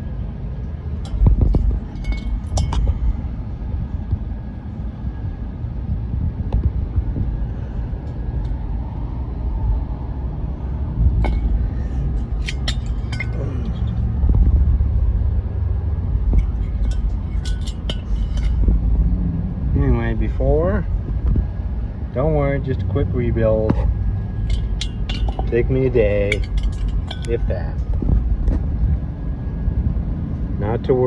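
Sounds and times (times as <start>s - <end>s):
low rumble: 0.0s - 30.6s
metallic clinks and knocks: 1.0s - 3.0s, 11.2s - 14.6s, 16.2s - 19.0s, 23.7s - 27.5s.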